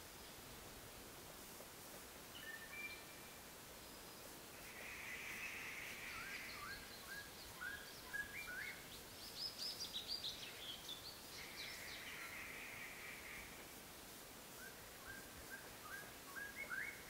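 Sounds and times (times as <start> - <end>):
faint background hiss: 0.0 - 17.0
birds whistling and chirping: 2.4 - 3.3, 6.1 - 8.8, 14.6 - 17.0.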